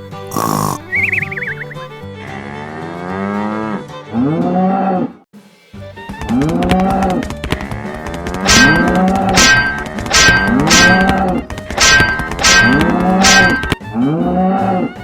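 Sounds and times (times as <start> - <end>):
wavering whistle: 0.9 - 1.9
cow-like mooing calls: 2.2 - 5.2.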